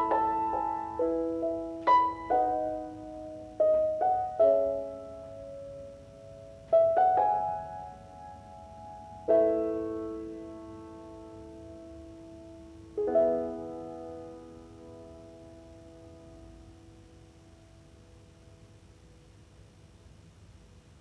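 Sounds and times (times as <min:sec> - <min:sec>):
slow gentle piano music: 0:00.0 - 0:20.1.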